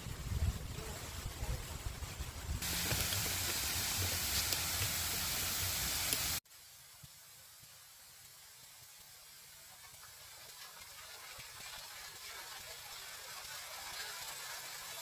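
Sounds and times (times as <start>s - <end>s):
wind rumbling on microphone: 0.0s - 4.4s
faint hiss: 0.0s - 15.0s
waterfall rushing: 2.6s - 6.4s.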